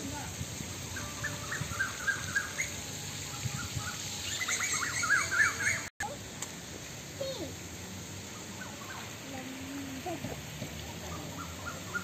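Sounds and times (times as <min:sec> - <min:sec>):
outdoor background noise: 0:00.0 - 0:12.0
small birds chirping: 0:00.8 - 0:05.9, 0:08.2 - 0:12.0.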